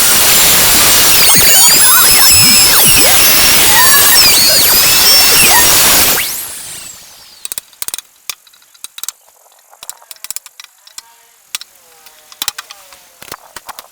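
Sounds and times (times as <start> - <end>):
power drill whine: 0.0 - 7.6
lock parts clicking and knocking: 7.4 - 13.9.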